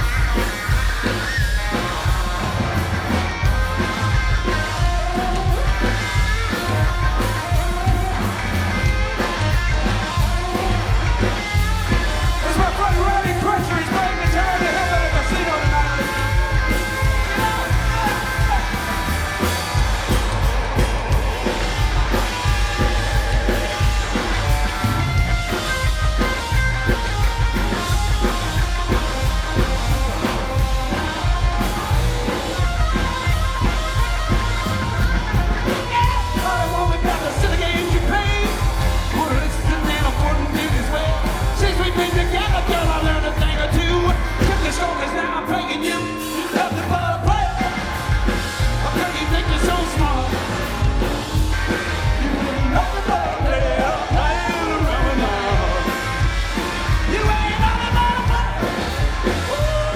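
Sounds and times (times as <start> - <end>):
live rock band playing: 0.0 - 59.9
lead singer singing: 8.8 - 26.4, 35.1 - 59.9.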